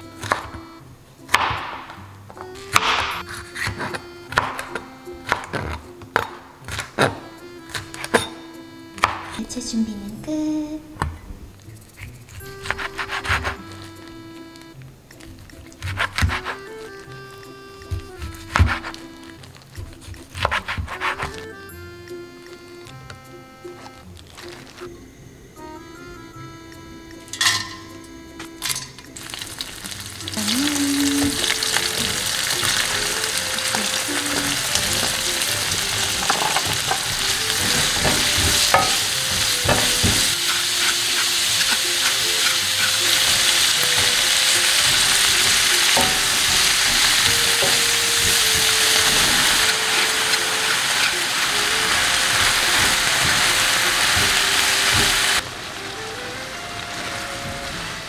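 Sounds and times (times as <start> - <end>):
vegetables sizzling in a wok: 28.7 - 58.0
spatula tapping and scraping pan: 34.5 - 55.4.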